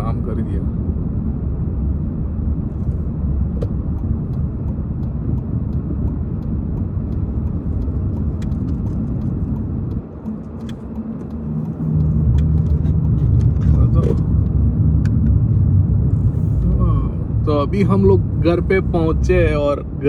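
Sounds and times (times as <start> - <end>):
car road and engine rumble: 0.0 - 20.0
faint regular ticking: 3.6 - 15.4.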